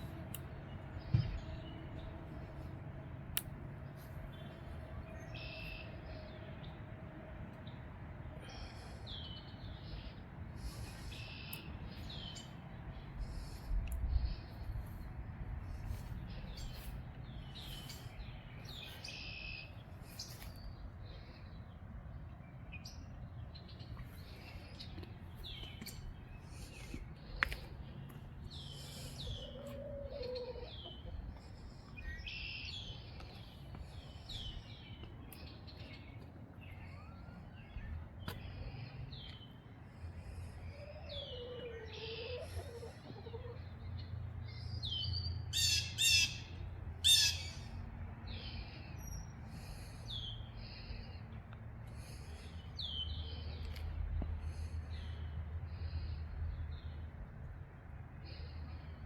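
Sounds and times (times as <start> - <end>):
low rumble of wind: 0.0 - 59.0
songbirds chirping: 0.0 - 59.0.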